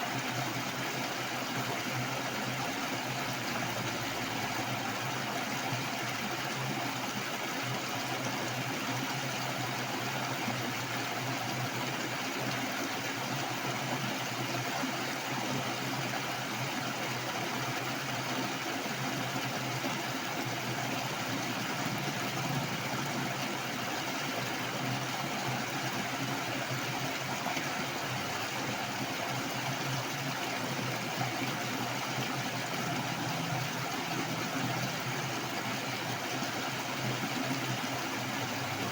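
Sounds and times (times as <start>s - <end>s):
water rushing: 19.0s - 38.9s.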